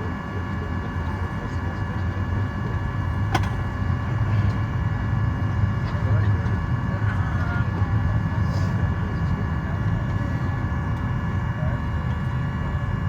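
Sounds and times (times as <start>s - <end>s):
aircraft cabin rumble: 0.0s - 13.0s.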